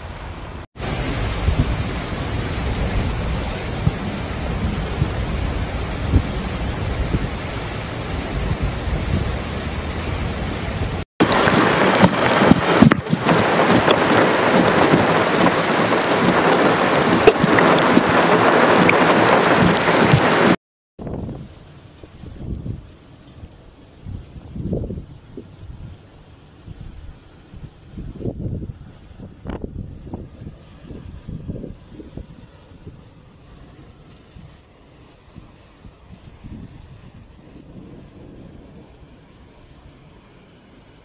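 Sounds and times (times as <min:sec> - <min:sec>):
deep steady rumble: 0:00.0 - 0:11.0
heavy rain pouring: 0:00.0 - 0:41.0
rain drops hitting ground: 0:00.0 - 0:41.0.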